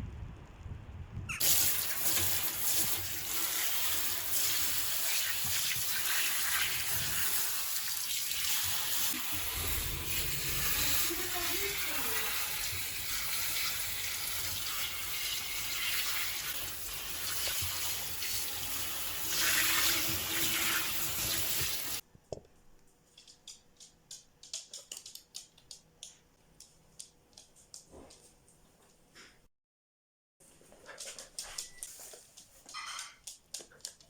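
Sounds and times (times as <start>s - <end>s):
water running from a tap: 1.4s - 22.0s.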